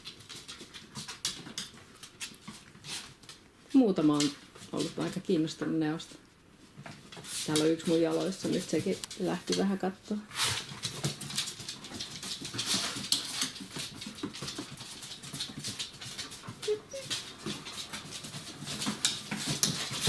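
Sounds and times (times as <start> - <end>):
puppies clicking and scuffling: 0.0 - 20.0
puppy whimper: 16.4 - 17.8.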